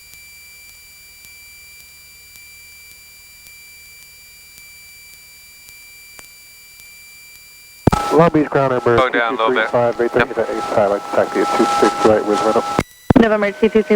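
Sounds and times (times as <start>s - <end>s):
faint electrical clicks: 7.9s - 8.3s.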